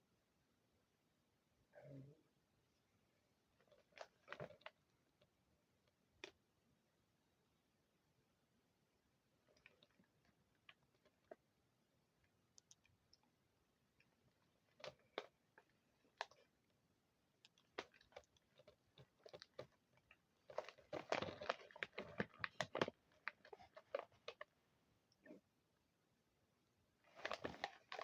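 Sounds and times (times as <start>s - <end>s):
crunchy snack being chewed: 17.4s - 24.5s.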